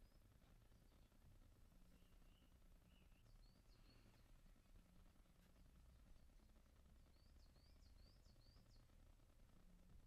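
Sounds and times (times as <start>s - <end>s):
faint high bird chirps: 0.0s - 4.5s, 7.0s - 9.0s
low background rumble: 0.0s - 10.0s.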